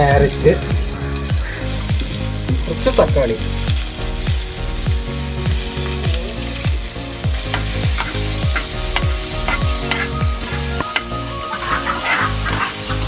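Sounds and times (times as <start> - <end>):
background music with beat: 0.0 - 13.0
vegetables sizzling in oil: 0.0 - 13.0
metal tongs clicking on pan: 7.5 - 10.2, 10.9 - 11.1.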